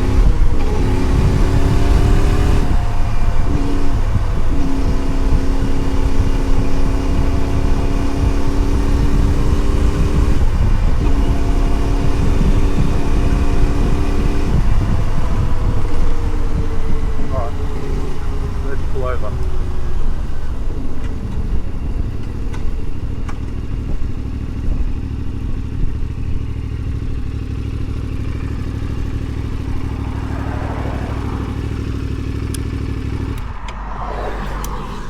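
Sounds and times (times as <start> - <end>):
motorcycle engine running: 0.0 - 33.6
wind and road noise: 0.0 - 35.0.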